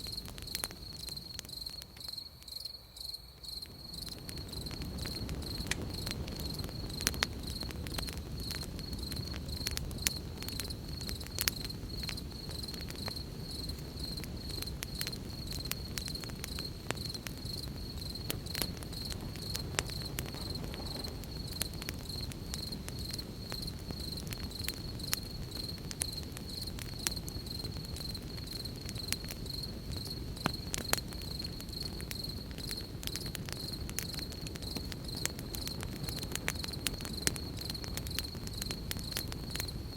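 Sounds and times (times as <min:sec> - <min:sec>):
campfire crackling and popping: 0:00.0 - 0:02.7, 0:03.4 - 0:39.9
crickets chirping: 0:00.0 - 0:39.9.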